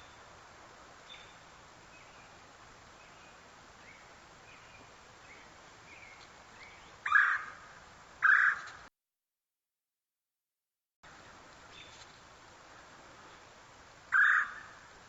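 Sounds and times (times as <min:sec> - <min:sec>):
loud bird calls: 0:03.9 - 0:08.8, 0:14.1 - 0:14.8.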